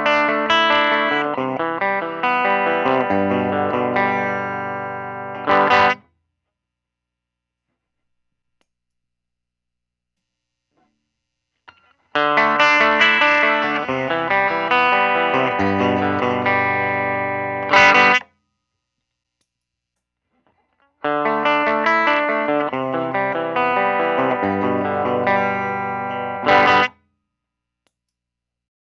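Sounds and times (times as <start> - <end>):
clean electric guitar phrase: 0.0 - 6.0, 12.2 - 18.2, 21.1 - 26.9
strummed guitar chord: 0.0 - 6.0, 12.2 - 18.2, 21.1 - 26.9.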